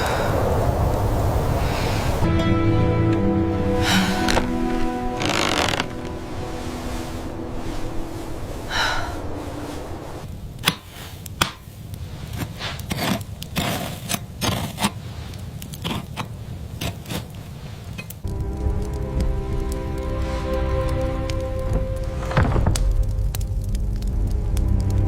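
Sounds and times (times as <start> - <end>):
background music: 2.2 - 10.2, 18.3 - 25.0
sharp knocks and scrapes: 10.6 - 18.2.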